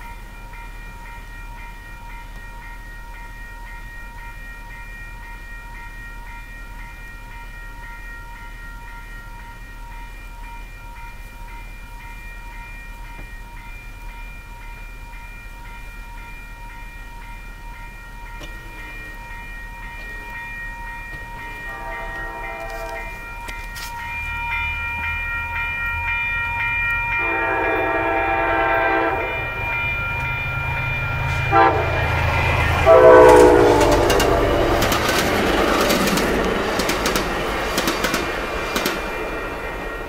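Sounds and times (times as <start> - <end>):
crossing bell ringing: 0.0 - 40.0
train rumbling past: 0.0 - 40.0
train horn blasts: 21.6 - 23.4, 27.2 - 29.8, 31.2 - 34.9
wheels clattering over rails: 33.2 - 40.0.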